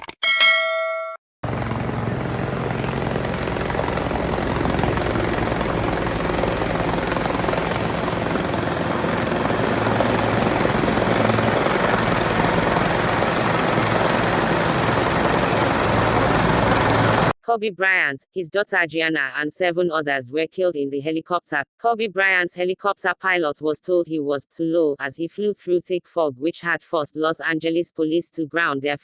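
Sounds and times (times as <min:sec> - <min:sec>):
helicopter rotor and engine: 0:01.4 - 0:17.3.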